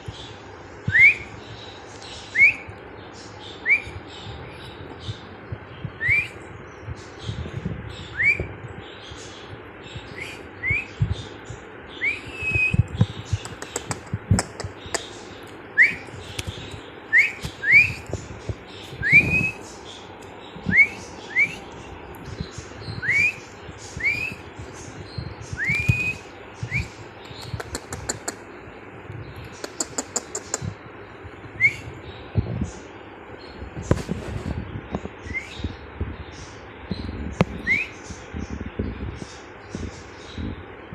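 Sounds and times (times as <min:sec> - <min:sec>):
scratchy bird chatter: 0:00.0 - 0:40.9
budgerigar whistled chirps: 0:17.1 - 0:18.1, 0:24.0 - 0:24.4, 0:37.6 - 0:38.0.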